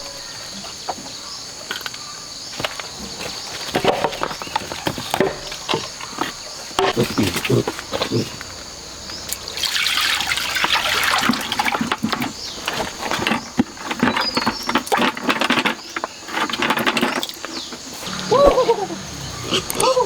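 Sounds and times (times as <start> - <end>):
water pouring and splashing: 6.9 - 13.4.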